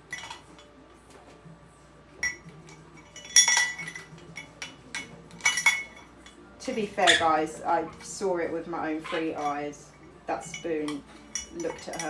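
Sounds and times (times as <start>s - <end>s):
spoon clinking against cup: 0.0s - 0.7s, 2.2s - 6.4s, 10.4s - 12.0s.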